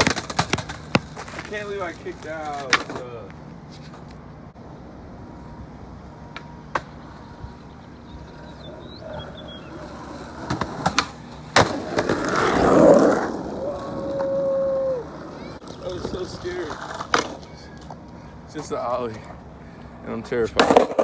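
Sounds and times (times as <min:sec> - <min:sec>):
skateboard landing smack: 0:00.0 - 0:01.5, 0:10.5 - 0:12.4
skateboard clacks: 0:00.0 - 0:04.2, 0:08.2 - 0:14.4, 0:15.0 - 0:19.4, 0:20.5 - 0:21.0
skateboard wheels rolling on asphalt: 0:00.0 - 0:21.0.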